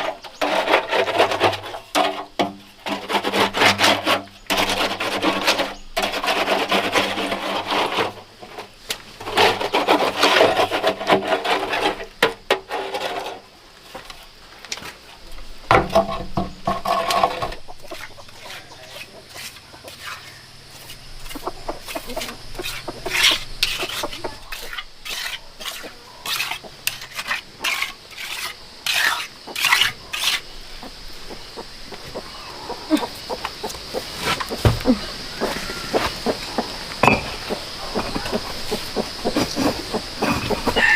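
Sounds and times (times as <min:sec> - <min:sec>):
rough scraping and rubbing: 0:00.0 - 0:15.1, 0:15.7 - 0:40.9
knocks and clatter: 0:15.7 - 0:18.3.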